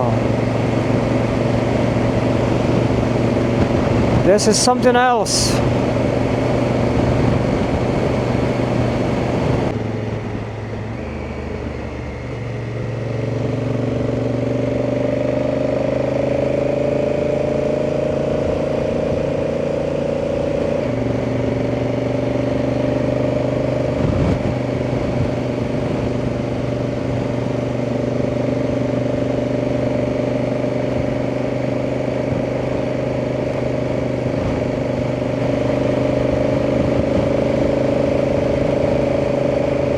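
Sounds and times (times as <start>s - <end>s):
wind noise: 0.0s - 11.2s, 22.6s - 27.6s, 34.1s - 39.9s
motorcycle engine running: 0.0s - 39.9s.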